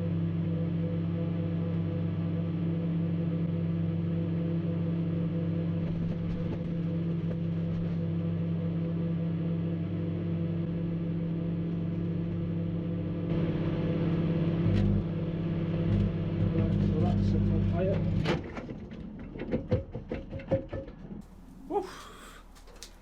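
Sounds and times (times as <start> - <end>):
microwave oven humming: 0.0 - 18.6
faint clicks: 22.0 - 23.0.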